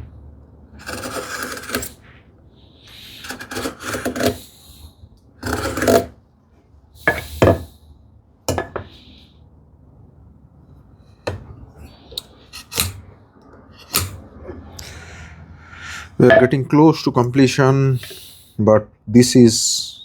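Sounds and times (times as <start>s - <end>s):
wood rubbing: 0.8s - 2.0s, 3.2s - 4.4s, 5.4s - 6.1s, 12.4s - 13.1s
tools knocking on workbench: 7.4s - 7.7s, 8.5s - 8.9s, 11.3s - 11.5s.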